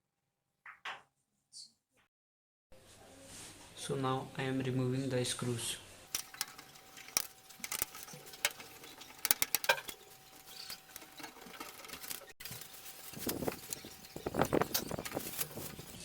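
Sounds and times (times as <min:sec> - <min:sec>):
screwdriver clicks and scrapes: 0:06.1 - 0:12.6.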